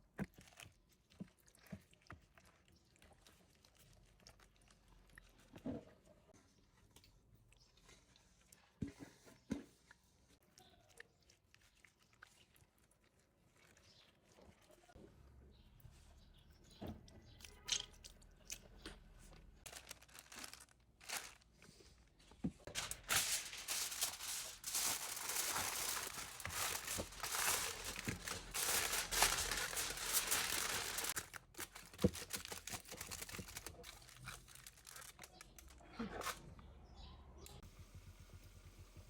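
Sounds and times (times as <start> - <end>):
hands tearing and crinkling packaging: 19.6 - 21.7, 22.7 - 36.4.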